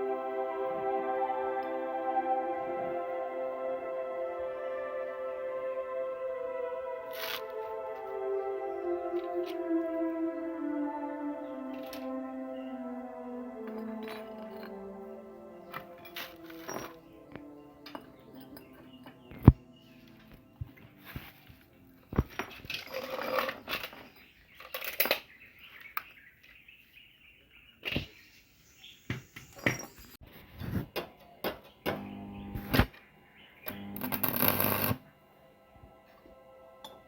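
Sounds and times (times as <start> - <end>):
background music of sustained tones: 0.0 - 26.3, 31.3 - 37.0
metal parts knocking and clanking: 22.2 - 25.3.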